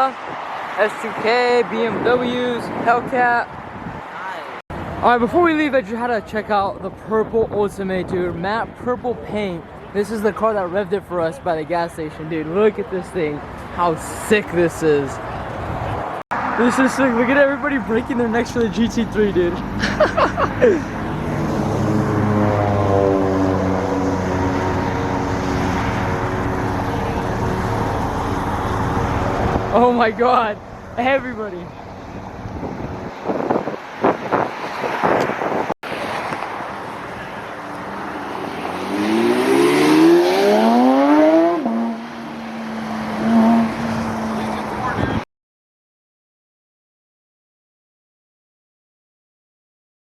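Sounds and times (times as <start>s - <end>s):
car engine droning: 16.4s - 34.4s, 35.9s - 45.2s.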